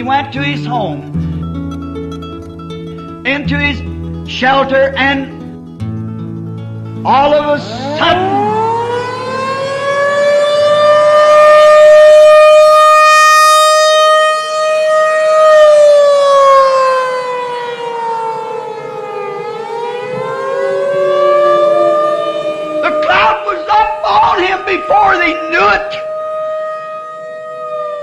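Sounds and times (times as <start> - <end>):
warning siren wailing: 7.1 - 28.0.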